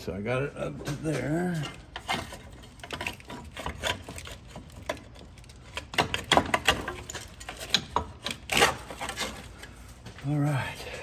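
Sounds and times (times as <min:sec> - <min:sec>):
metal clunks and scraping: 0:00.6 - 0:10.2.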